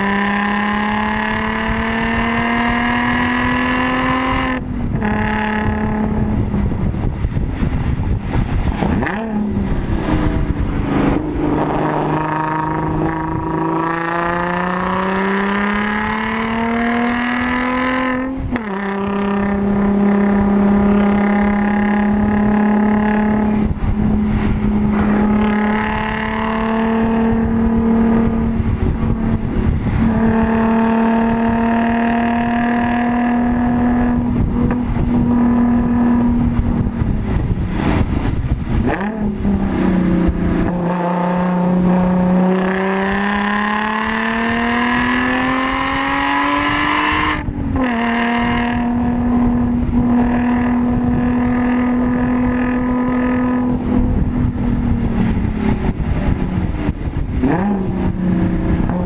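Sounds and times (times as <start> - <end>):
car engine at full throttle: 0.0 - 59.0.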